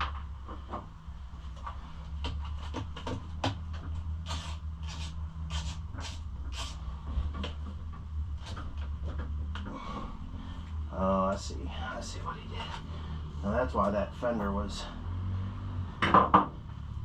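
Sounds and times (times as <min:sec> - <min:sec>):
steady low hum: 0:00.0 - 0:17.0
clicks and knocks of hand work: 0:01.5 - 0:09.8.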